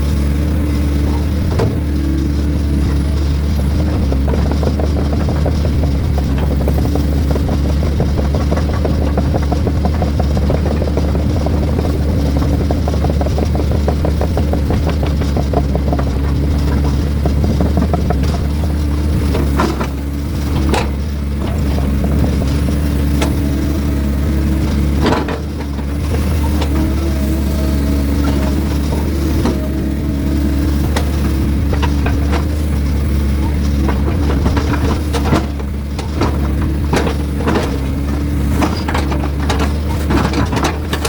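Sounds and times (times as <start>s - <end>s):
heavy diesel engine running: 0.0s - 41.0s.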